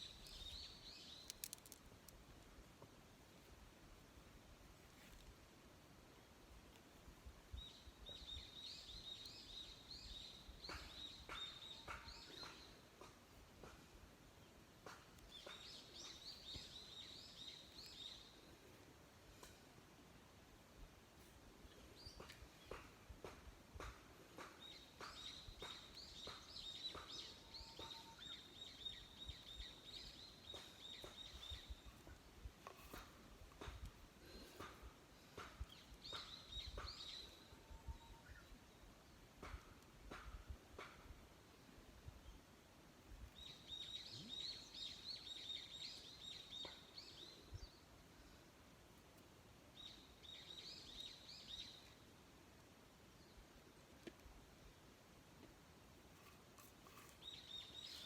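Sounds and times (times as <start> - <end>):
bird chirping: 0.0 - 1.8, 24.4 - 33.1, 56.2 - 58.0.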